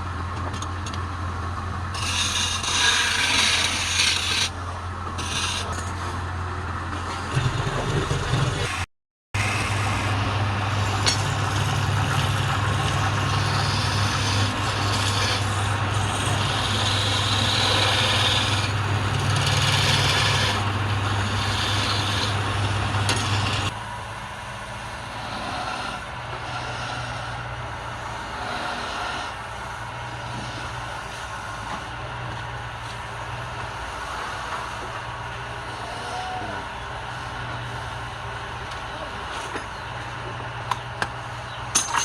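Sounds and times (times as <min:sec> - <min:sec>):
tool scraping spinning wood: 0:01.8 - 0:23.8, 0:25.0 - 0:32.0
wood lathe motor hum: 0:01.9 - 0:06.0, 0:09.4 - 0:23.8, 0:25.0 - 0:31.2.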